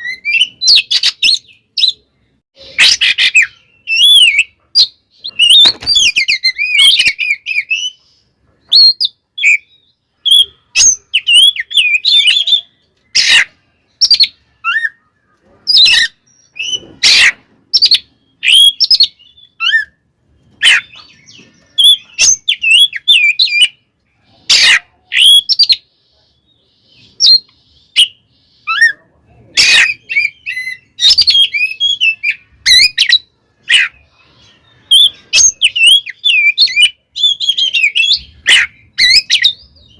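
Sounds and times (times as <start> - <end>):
sharp clipped bird notes: 2.6 - 23.8
bird singing twisting whistles: 34.8 - 39.9.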